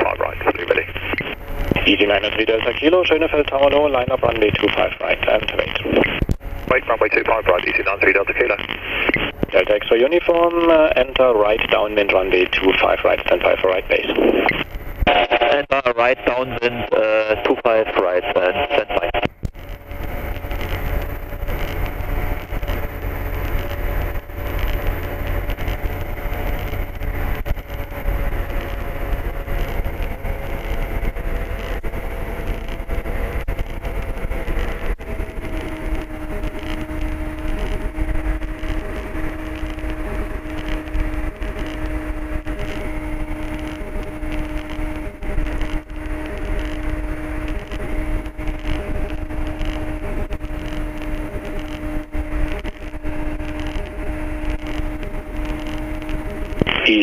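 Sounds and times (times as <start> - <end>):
low steady hum: 0.0 - 57.0
aircraft engine and propeller droning: 19.5 - 56.7.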